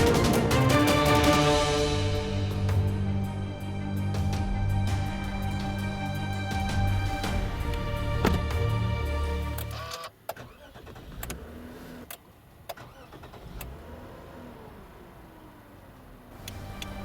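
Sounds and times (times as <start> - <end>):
background music: 0.0 - 10.0, 16.4 - 17.0.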